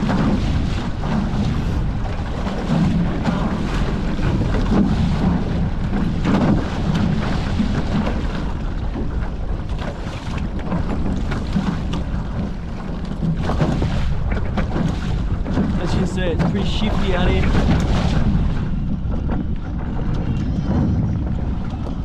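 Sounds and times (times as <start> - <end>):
water rushing along hulls: 0.0 - 22.0
water splash: 0.0 - 22.0
wind buffeting microphone: 0.0 - 22.0.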